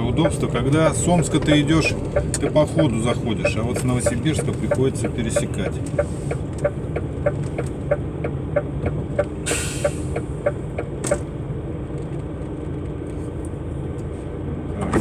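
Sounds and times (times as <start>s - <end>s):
turn signal ticking: 0.0s - 11.4s
truck engine running: 0.0s - 15.0s.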